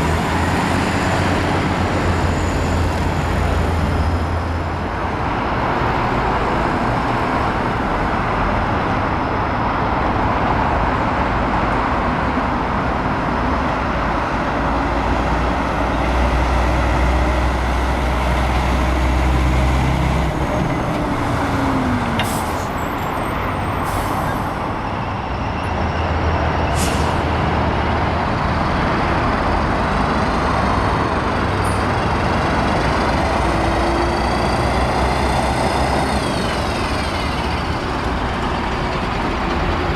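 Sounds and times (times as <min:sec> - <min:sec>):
diesel truck engine rumble: 0:00.0 - 0:39.9
air brakes hissing: 0:22.1 - 0:24.7, 0:26.6 - 0:27.4.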